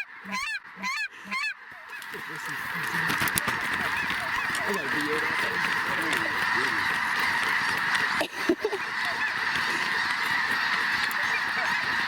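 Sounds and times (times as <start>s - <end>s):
flock of geese honking: 0.0s - 12.0s.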